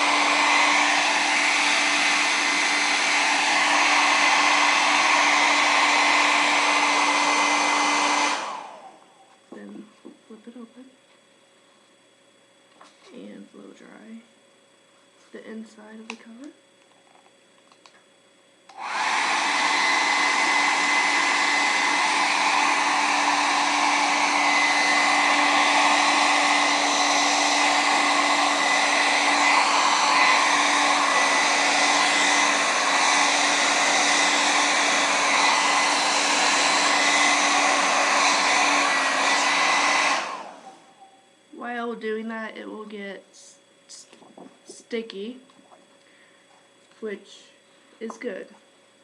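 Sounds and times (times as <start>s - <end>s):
hair dryer blowing: 0.0s - 10.7s, 18.6s - 42.9s.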